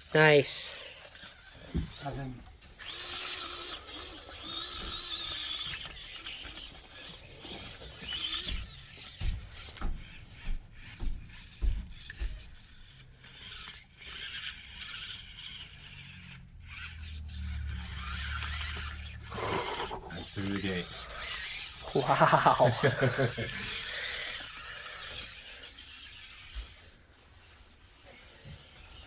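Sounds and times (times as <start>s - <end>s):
toy car motor and gears whirring: 0.0s - 29.0s
short dull thumps: 7.6s - 12.8s.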